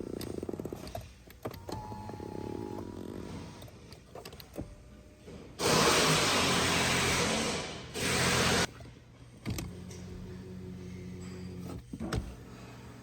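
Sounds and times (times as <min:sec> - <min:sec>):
power seat motor running: 0:00.0 - 0:05.1.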